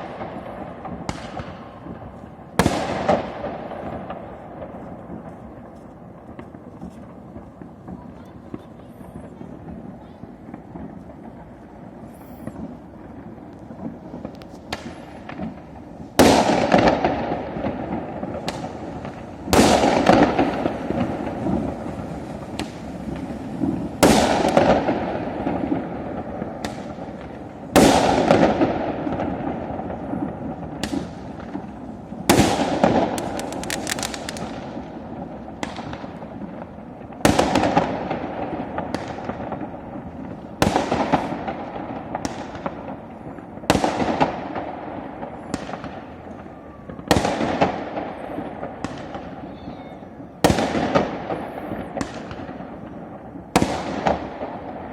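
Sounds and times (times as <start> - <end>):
fireworks bangs: 0.0 - 54.9
small fireworks pops: 0.0 - 54.9.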